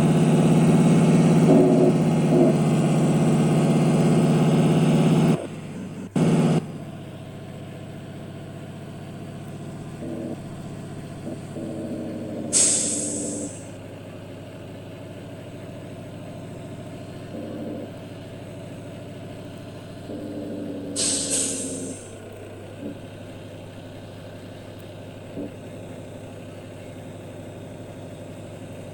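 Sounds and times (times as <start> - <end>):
truck diesel engine running: 0.0 - 28.9
air brake hiss: 12.5 - 13.7, 21.0 - 22.2.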